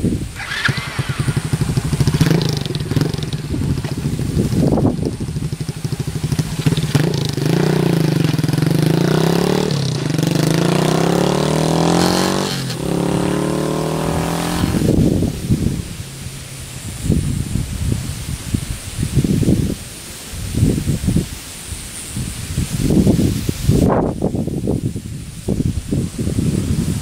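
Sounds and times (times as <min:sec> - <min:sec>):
minibike engine accelerating: 0:00.0 - 0:18.2.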